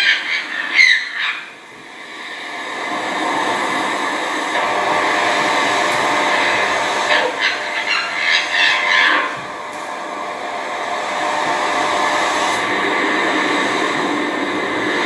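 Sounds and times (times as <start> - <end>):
bird calls: 0.0 - 1.6, 6.0 - 12.9
steady rushing noise: 1.6 - 15.0.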